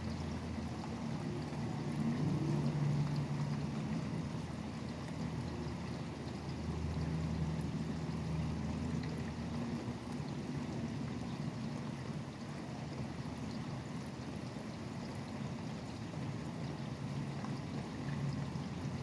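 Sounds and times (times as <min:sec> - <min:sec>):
highway traffic hum: 0:00.0 - 0:12.8
steady rain: 0:00.2 - 0:19.0.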